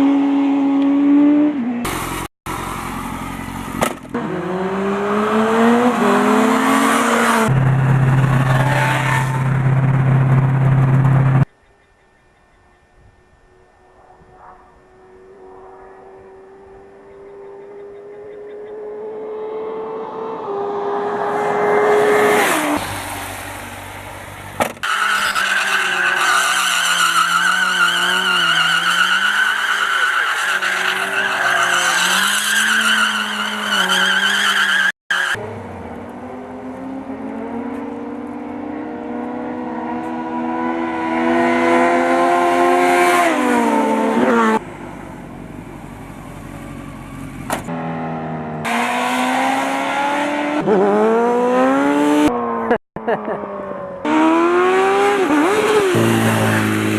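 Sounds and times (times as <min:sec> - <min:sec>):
motorcycle engines revving: 0:00.0 - 0:11.5, 0:14.0 - 0:24.2, 0:45.3 - 0:56.9.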